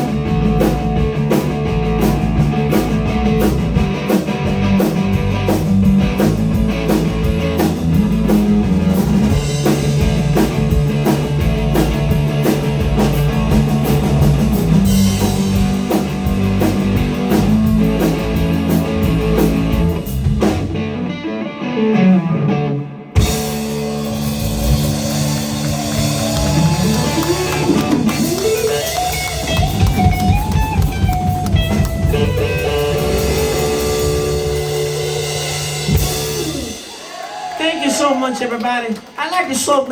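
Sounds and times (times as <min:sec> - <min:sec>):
blues-rock band playing: 0:00.0 - 0:39.2
electric guitar sliding notes: 0:07.8 - 0:36.8.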